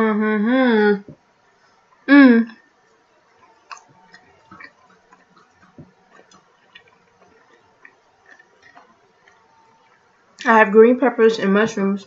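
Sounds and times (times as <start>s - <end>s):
mouth chewing pizza: 3.4s - 10.0s.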